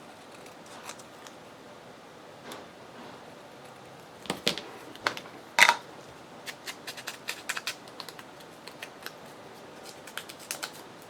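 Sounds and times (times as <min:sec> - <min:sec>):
paper and craft tools clicking: 0:09.8 - 0:10.8.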